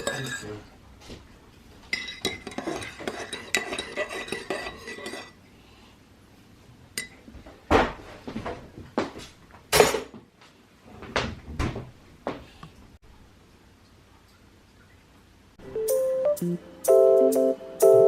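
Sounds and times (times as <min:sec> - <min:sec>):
cutlery and dishes clattering: 0:00.0 - 0:00.5, 0:01.9 - 0:05.4, 0:09.8 - 0:10.1.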